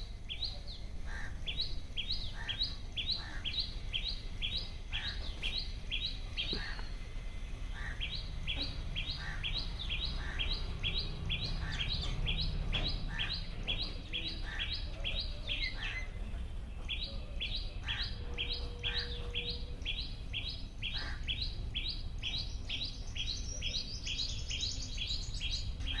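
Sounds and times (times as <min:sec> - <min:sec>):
small bird chirping: 0:07.8 - 0:26.0
higher-pitched bird call: 0:17.8 - 0:20.0.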